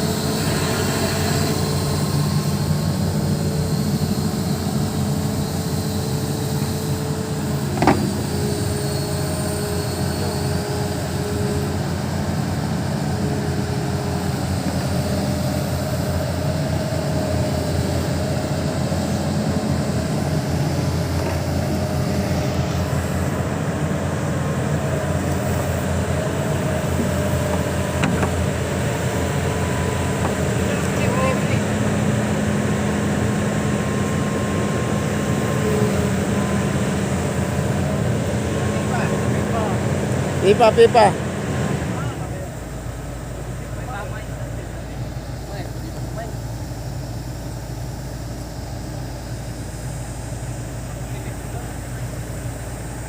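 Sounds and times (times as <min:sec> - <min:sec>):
excavator diesel engine running: 0:00.0 - 0:53.0
sharp knock: 0:07.8 - 0:08.2.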